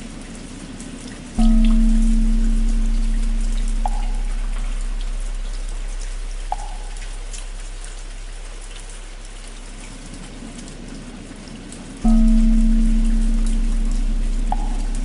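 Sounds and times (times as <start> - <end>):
steady rain pattering: 0.0 - 15.0
large bell ringing with deep hum: 1.4 - 10.2, 12.0 - 15.0.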